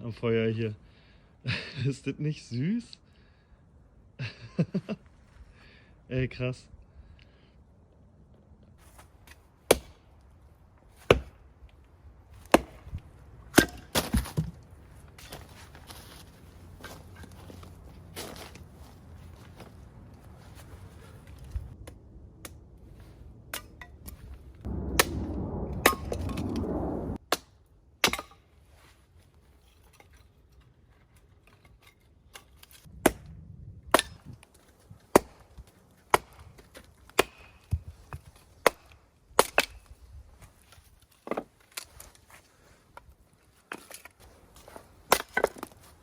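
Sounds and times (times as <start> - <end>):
firewood being chopped: 9.0 - 10.0, 11.0 - 11.4, 12.4 - 14.6, 33.9 - 39.9, 45.0 - 45.9
rough noise burst: 24.7 - 27.2.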